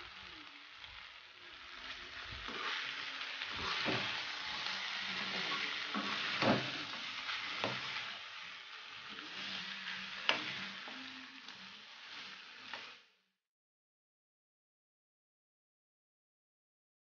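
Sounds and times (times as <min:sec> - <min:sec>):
meat sizzling in a pan: 0:00.0 - 0:13.4
metal spoon scraping a pan: 0:02.4 - 0:13.0.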